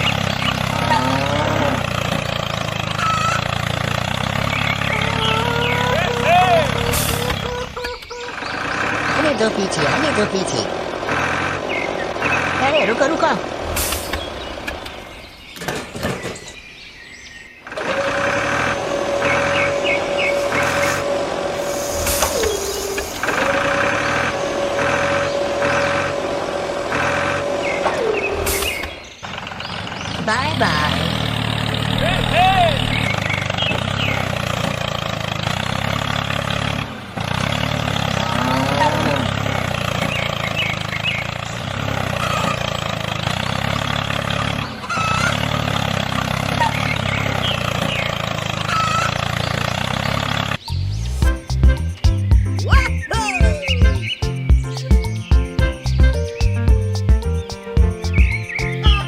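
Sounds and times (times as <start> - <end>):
toy truck motor whining: 0.0 - 14.8, 17.7 - 29.0, 30.6 - 50.6
motor running with fast pulse: 17.7 - 29.0.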